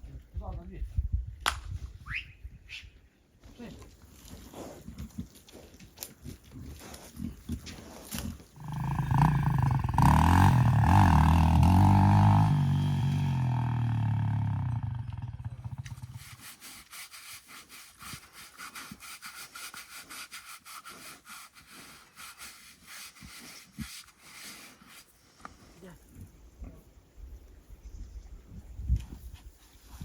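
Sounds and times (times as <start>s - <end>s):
cow lowing: 6.4s - 13.9s.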